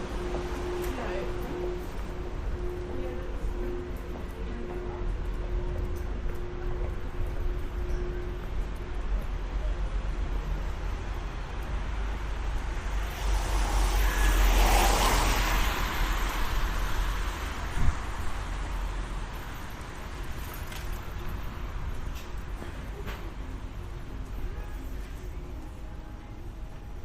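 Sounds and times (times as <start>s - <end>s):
low street rumble: 0.0s - 27.0s
road vehicle passing: 10.2s - 22.6s.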